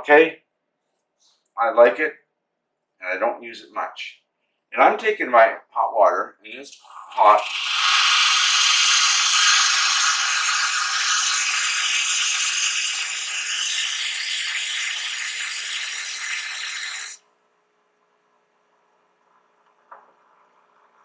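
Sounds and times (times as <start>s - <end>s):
hot water spitting and hissing: 6.7s - 17.2s.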